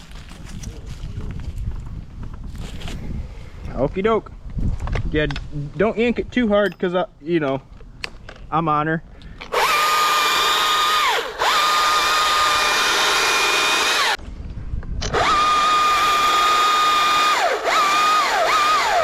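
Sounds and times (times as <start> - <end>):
electric chainsaw motor whine: 9.5 - 14.2, 15.0 - 19.0.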